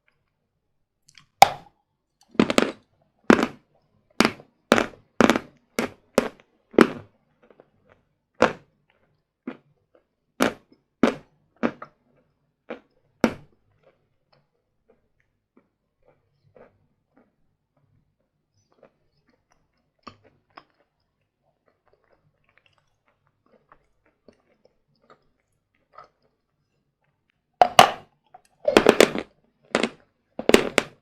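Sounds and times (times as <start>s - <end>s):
chalk crunching being chewed: 5.6s - 13.1s, 13.7s - 27.4s.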